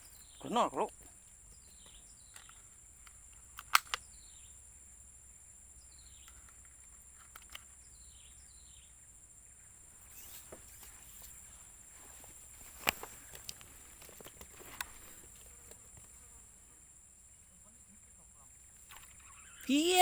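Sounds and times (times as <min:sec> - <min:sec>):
high insect drone: 0:00.0 - 0:20.0
sharp click: 0:02.3 - 0:04.1.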